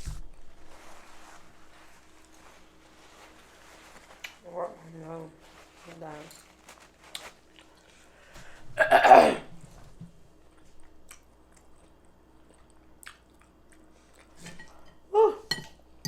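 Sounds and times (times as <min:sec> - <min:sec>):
throaty vocal sound: 0:08.8 - 0:09.5
chewing and mouth clicks: 0:10.5 - 0:14.8.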